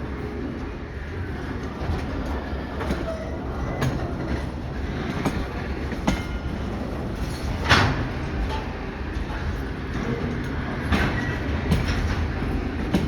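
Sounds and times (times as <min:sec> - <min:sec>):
freight train rumbling: 0:00.0 - 0:13.0
train wheels clicking over rail joints: 0:01.4 - 0:13.0.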